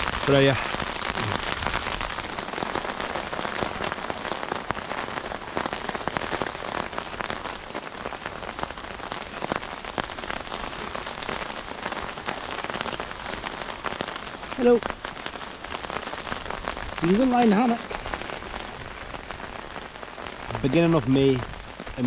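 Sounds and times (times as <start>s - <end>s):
rain and hail on a tarpaulin: 0.0s - 22.0s.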